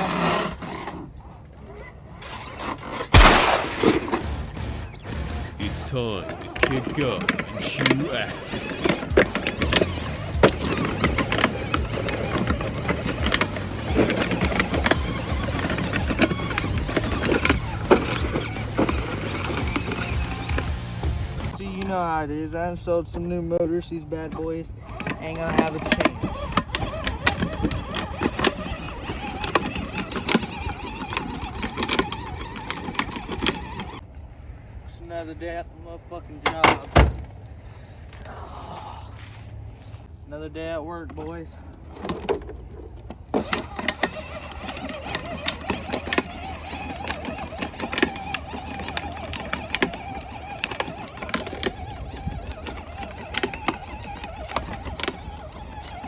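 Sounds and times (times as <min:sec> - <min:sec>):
ride-on tractor engine whine: 0:00.0 - 0:34.1, 0:41.7 - 0:56.0
rattles and knocks: 0:02.3 - 0:22.0, 0:24.2 - 0:34.0, 0:41.1 - 0:56.0
clicks and knocks: 0:06.2 - 0:21.9.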